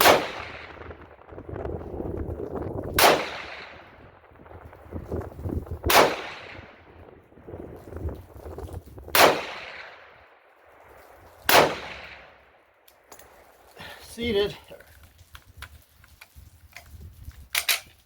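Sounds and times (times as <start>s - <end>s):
rifle shots with echo: 0.0s - 1.9s, 2.9s - 4.9s, 5.8s - 7.1s, 9.1s - 10.5s, 11.4s - 12.6s.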